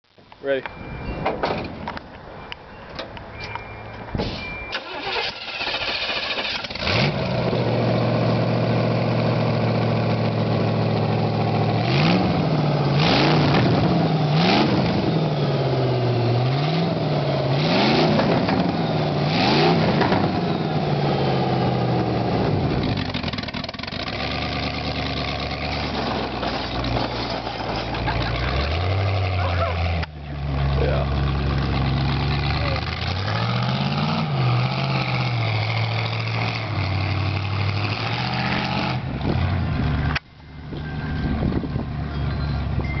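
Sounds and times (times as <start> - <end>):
engine starter cranking: 4.7 - 7.0
engine revving: 4.8 - 40.2.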